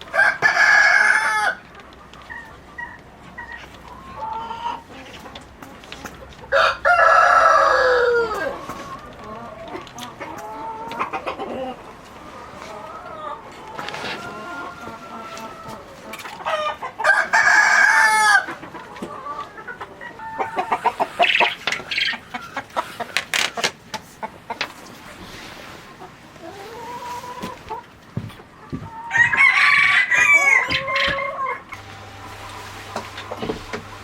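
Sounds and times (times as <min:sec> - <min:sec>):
hens clucking: 0:00.0 - 0:34.0
rooster crowing: 0:06.5 - 0:08.6, 0:17.0 - 0:18.5, 0:28.8 - 0:31.8.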